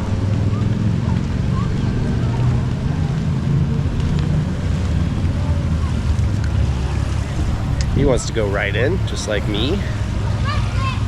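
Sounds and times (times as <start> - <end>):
faint voices: 0.0 - 11.0
wind rumbling on microphone: 0.0 - 11.0.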